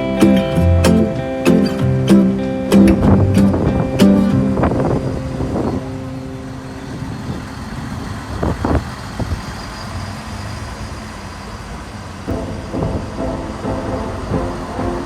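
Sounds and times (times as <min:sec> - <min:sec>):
train rumbling: 0:03.0 - 0:15.0.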